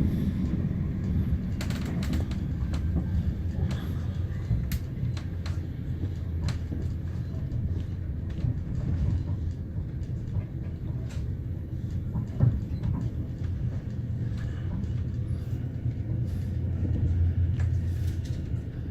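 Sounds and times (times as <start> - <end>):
train wheels rumbling on rail: 0.0 - 18.9.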